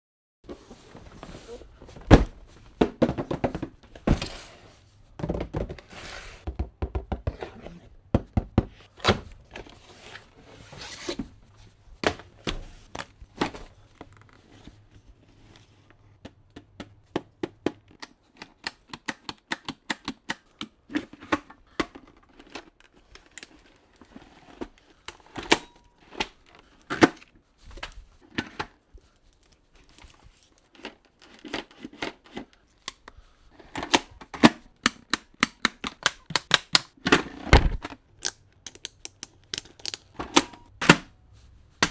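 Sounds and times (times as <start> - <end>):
sharp clicks and knocks: 37.6 - 41.0.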